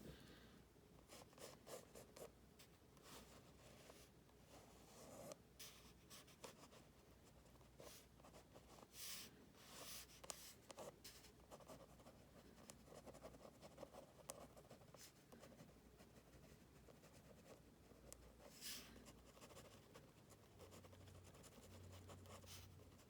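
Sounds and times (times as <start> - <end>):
pencil scratching on paper: 16.2 - 23.0.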